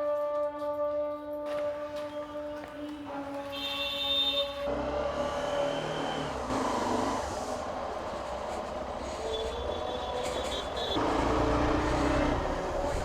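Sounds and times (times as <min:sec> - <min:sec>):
traffic rumbling past: 0:04.7 - 0:13.0.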